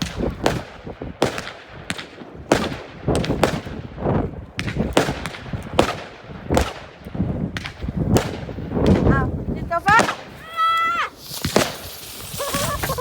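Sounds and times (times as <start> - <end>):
fireworks exploding: 0.0 - 13.0.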